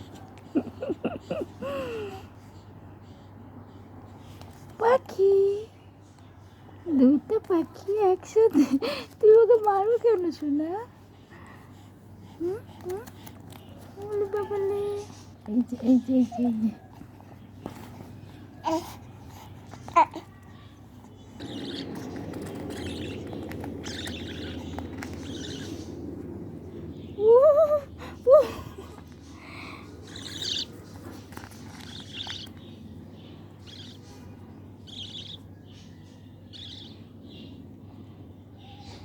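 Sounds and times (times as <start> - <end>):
pet bird chirping: 0.0 - 39.0
bird rising squeals: 21.3 - 26.1, 29.8 - 31.0.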